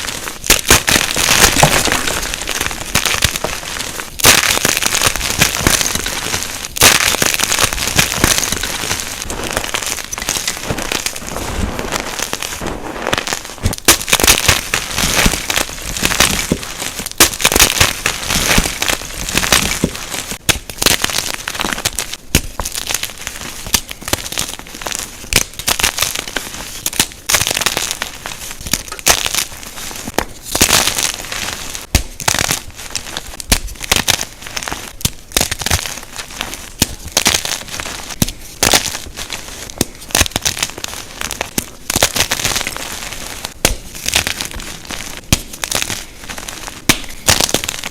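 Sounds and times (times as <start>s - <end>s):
chalk crunching and crumbling: 0.0s - 47.9s.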